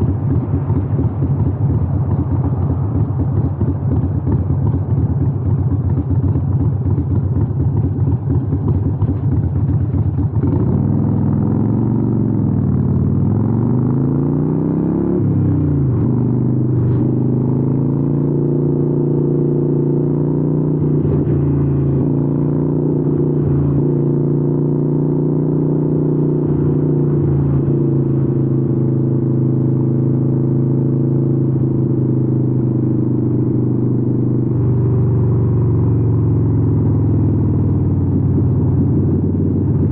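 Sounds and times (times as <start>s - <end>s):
motorcycle engine while riding: 0.0s - 39.9s.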